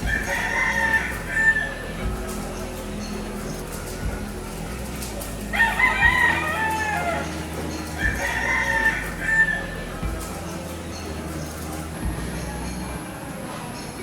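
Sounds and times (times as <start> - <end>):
rooster crowing: 0.0 - 2.3, 5.5 - 10.1.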